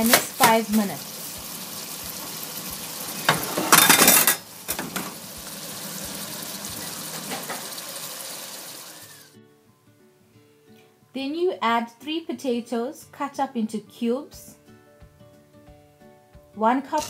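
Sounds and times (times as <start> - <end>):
curry sizzling in a pot: 0.0 - 9.4.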